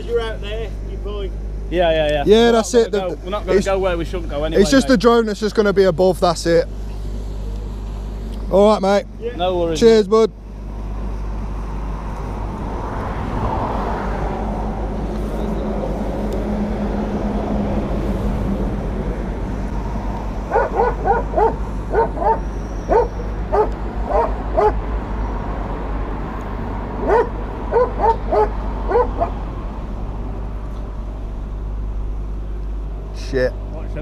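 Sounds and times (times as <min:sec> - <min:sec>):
dog barking: 0:20.5 - 0:24.8, 0:27.0 - 0:29.4.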